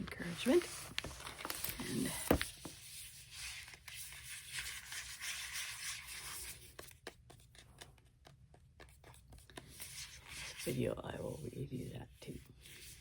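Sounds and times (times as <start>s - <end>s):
paper or plastic rustling: 0.0s - 2.8s.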